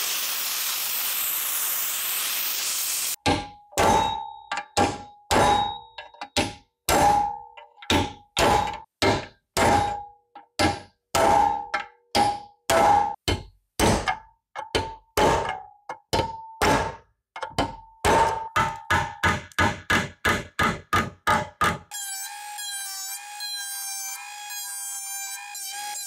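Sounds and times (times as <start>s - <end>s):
hammer striking steel: 3.2s - 21.8s.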